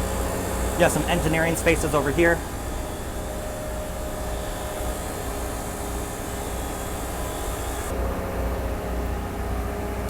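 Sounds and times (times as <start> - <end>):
faint steady whine: 0.0 - 8.2
generator running: 0.0 - 8.8.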